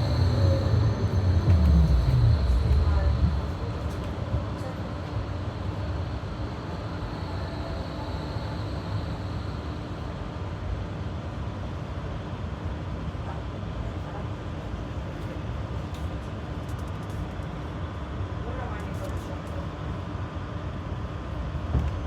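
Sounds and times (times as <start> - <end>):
tram wheels rumbling on rails: 0.0 - 9.9
faint steady tones: 0.0 - 10.0.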